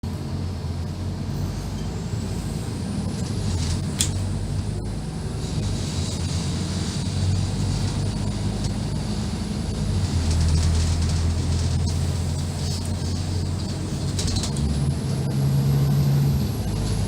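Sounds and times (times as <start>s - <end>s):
bus diesel engine drone: 0.0s - 17.0s.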